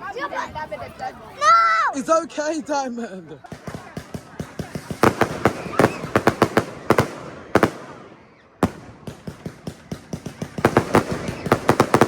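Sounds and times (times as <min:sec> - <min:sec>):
fireworks bangs and crackles: 0:03.4 - 0:12.0.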